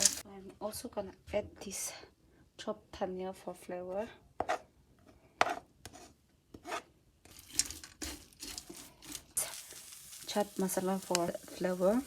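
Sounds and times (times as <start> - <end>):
food sizzling in a pan: 0.0 - 0.2, 7.4 - 12.0
spatula scraping a pan: 5.4 - 12.0.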